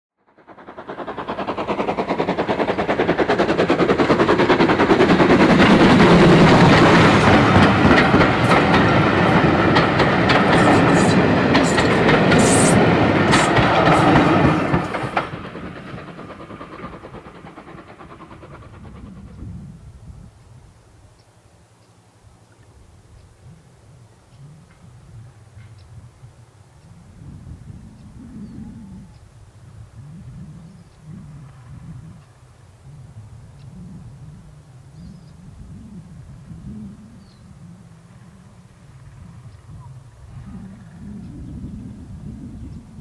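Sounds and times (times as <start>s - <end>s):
passenger train rumbling past: 0.2s - 20.6s, 24.7s - 43.0s
wheels clicking: 0.3s - 19.5s.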